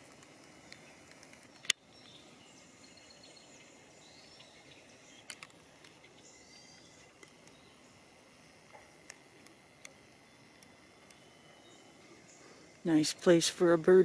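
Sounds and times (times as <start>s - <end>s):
sharp clicks: 0.0s - 2.2s, 5.2s - 6.1s
faint bird calls: 0.6s - 8.1s.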